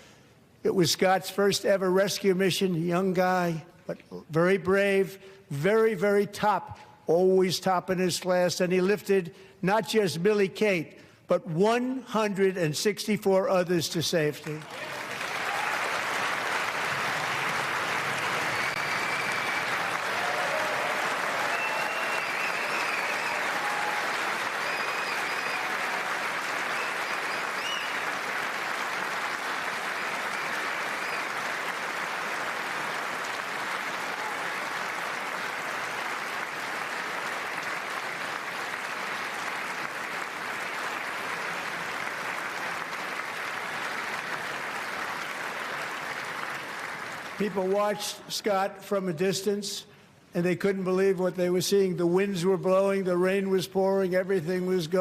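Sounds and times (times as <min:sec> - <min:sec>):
audience applause: 0:14.5 - 0:47.9
high whistles: 0:18.4 - 0:19.9, 0:21.4 - 0:26.0, 0:26.6 - 0:28.2.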